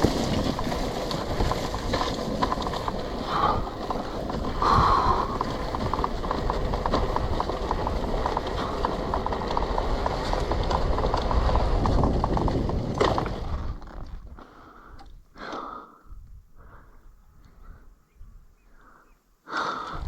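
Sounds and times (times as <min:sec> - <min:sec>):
two-stroke motorcycle riding: 0:00.0 - 0:14.4.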